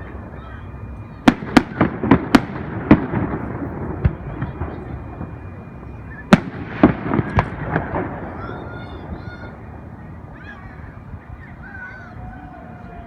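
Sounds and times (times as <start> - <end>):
fireworks bangs: 0.0 - 11.6
rumbling echo: 0.0 - 13.0.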